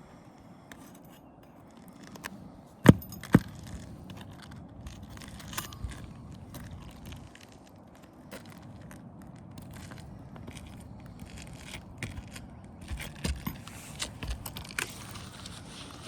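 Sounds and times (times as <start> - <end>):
metallic clinks and scraping: 0.7 - 7.2.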